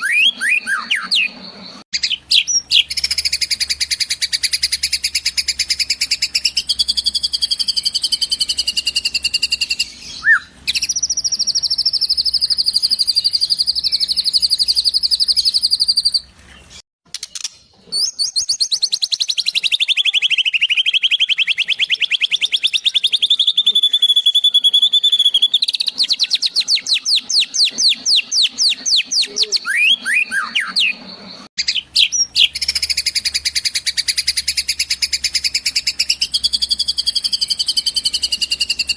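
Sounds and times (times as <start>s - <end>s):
bird singing rapid high trills: 0.0s - 16.3s, 18.0s - 38.9s.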